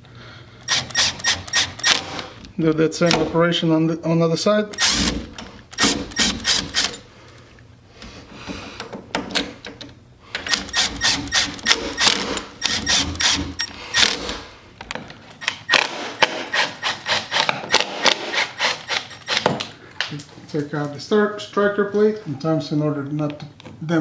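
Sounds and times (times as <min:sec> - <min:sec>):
screwdriver clicking: 0:00.6 - 0:02.0, 0:04.8 - 0:07.0, 0:10.4 - 0:14.4.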